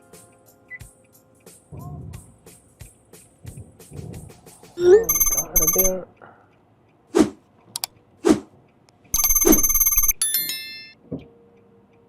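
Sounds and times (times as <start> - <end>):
phone ringtone ringing: 4.8 - 6.0, 9.2 - 11.0.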